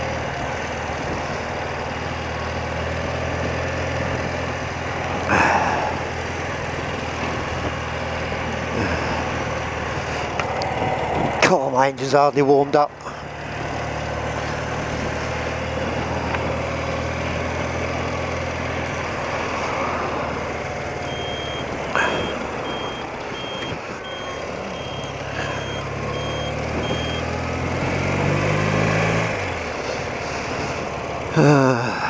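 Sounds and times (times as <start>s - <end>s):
motorcycle engine running: 0.0s - 32.0s
road and wind noise: 0.0s - 32.0s
reversing alarm beeping: 21.0s - 27.4s.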